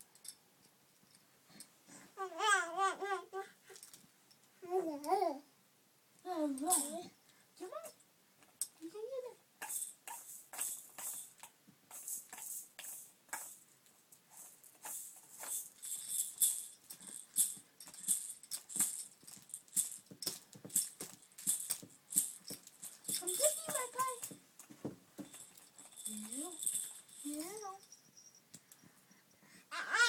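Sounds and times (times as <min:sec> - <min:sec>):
baby rattle shaking: 0:02.7 - 0:04.0, 0:06.3 - 0:07.1, 0:09.6 - 0:28.9.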